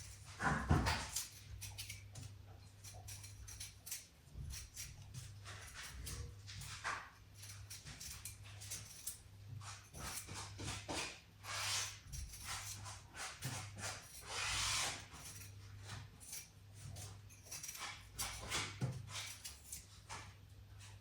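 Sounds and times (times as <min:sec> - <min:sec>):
knife scraping potatoes: 0:00.0 - 0:21.0.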